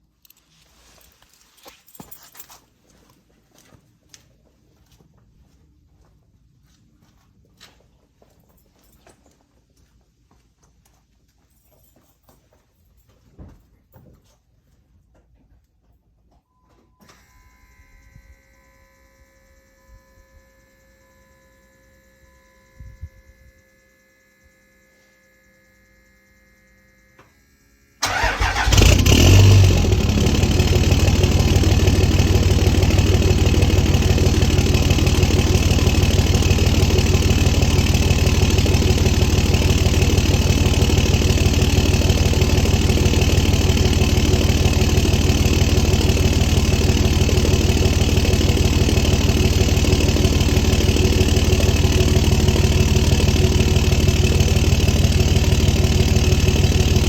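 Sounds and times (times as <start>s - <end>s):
diesel engine cranking and starting: 28.0s - 57.0s
diesel engine idling loudly: 28.0s - 57.0s.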